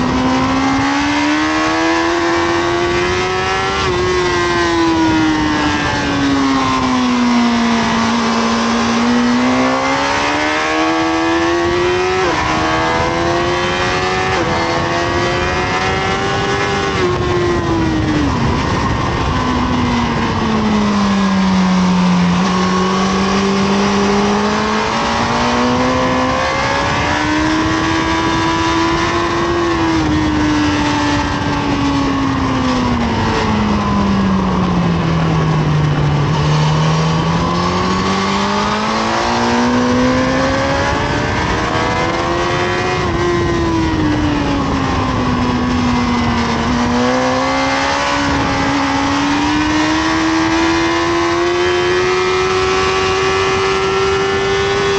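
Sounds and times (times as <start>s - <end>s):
motorcycle engine revving: 0.0s - 54.9s
wind rush: 0.0s - 54.9s.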